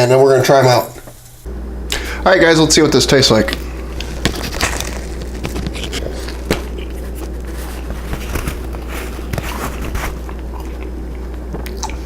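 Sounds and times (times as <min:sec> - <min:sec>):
steady low hum: 0:00.0 - 0:12.0
crunchy chewing of pizza crust: 0:03.6 - 0:12.0.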